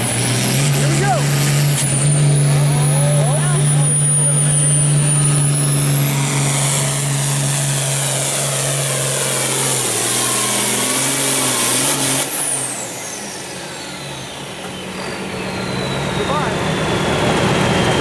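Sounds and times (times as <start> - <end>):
diesel engine running under load: 0.0 - 18.0
high turbo whistle: 5.1 - 18.0.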